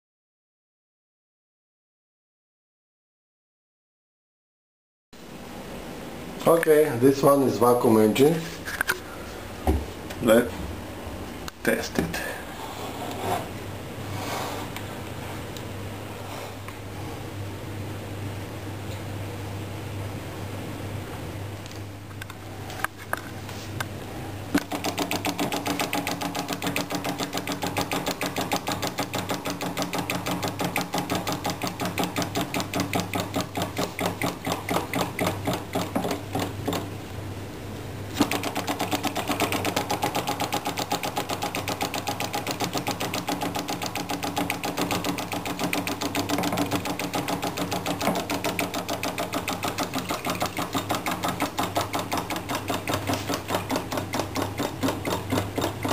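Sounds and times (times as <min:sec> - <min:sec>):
small engine clattering: 0:24.6 - 0:36.8, 0:38.2 - 0:55.9.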